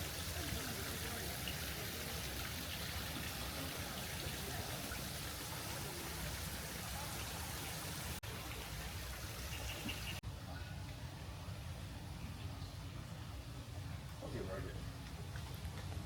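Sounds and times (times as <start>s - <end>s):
running water: 0.0s - 10.2s.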